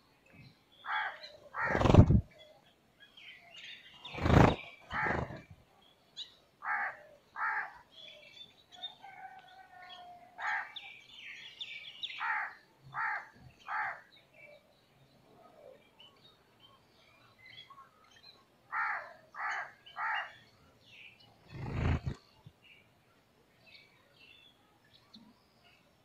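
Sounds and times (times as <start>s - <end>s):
birds calling: 0.8s - 2.7s, 3.4s - 5.6s, 17.4s - 22.4s.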